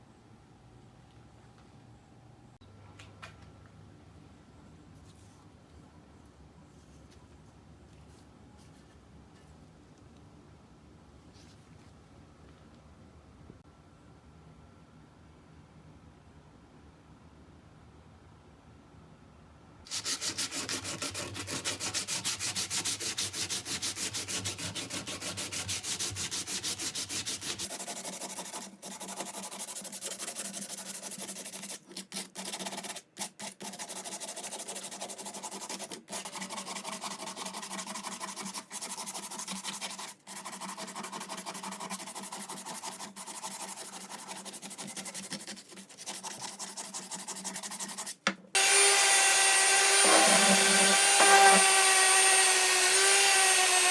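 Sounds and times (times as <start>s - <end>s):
sandpaper rubbing on wood: 19.9s - 53.9s.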